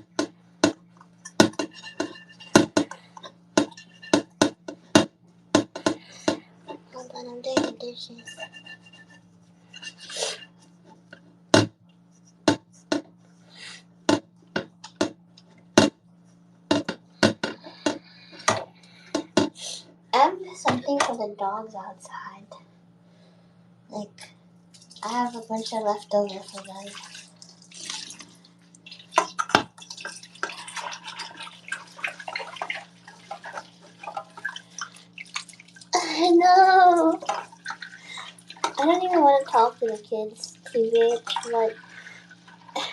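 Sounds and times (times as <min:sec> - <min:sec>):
steady low hum: 0:00.0 - 0:42.9
dishes clinking: 0:00.6 - 0:04.6, 0:07.5 - 0:10.5
running and dripping water: 0:24.7 - 0:42.9.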